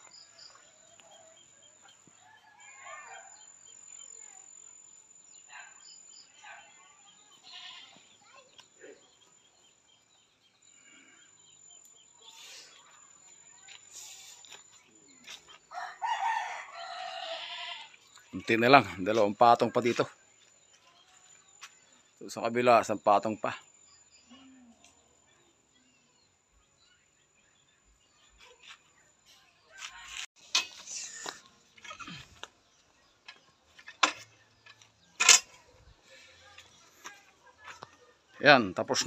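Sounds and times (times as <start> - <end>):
rooster crowing: 2.2 - 3.3, 15.7 - 17.8.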